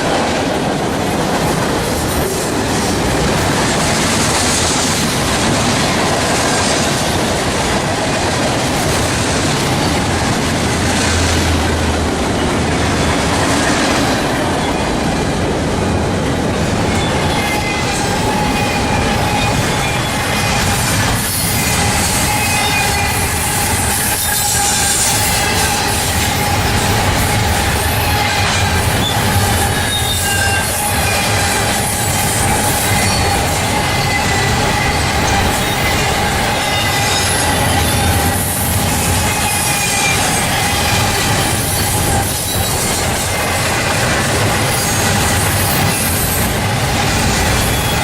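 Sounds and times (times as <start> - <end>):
train wheels rumbling on rail: 0.0 - 48.0
high wheel squeal: 16.8 - 48.0.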